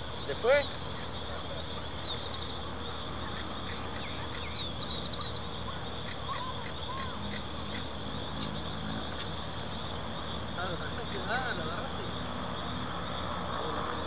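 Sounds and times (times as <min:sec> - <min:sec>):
birds chirping and whistling: 0:00.0 - 0:14.0.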